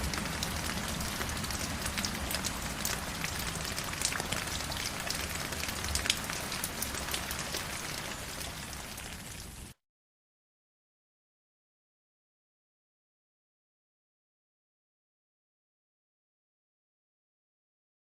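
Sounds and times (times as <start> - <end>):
stream water flowing over rocks: 0.0 - 9.3.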